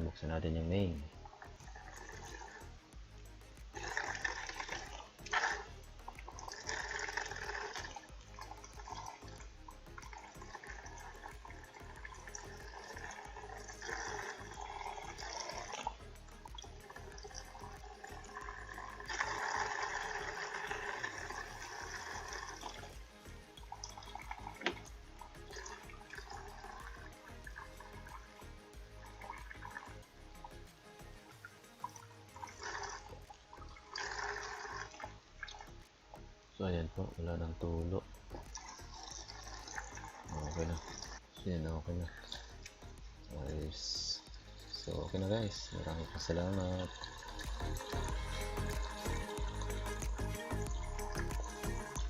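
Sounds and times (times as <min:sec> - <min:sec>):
faucet water running into sink: 0:03.8 - 0:35.0.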